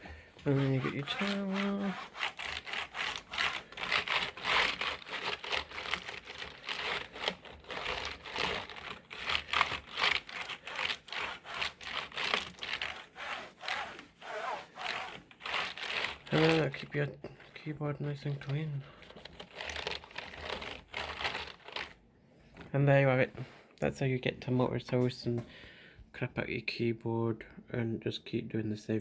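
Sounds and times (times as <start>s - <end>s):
towel rubbing keyboard keys: 0.4s - 16.8s, 18.2s - 22.0s.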